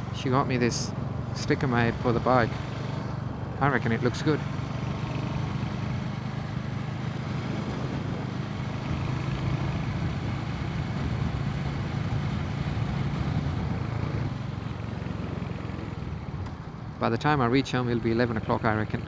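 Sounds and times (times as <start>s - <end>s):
motorcycle engine running: 0.0s - 19.0s
road noise: 0.0s - 19.0s
wind noise: 7.5s - 14.4s.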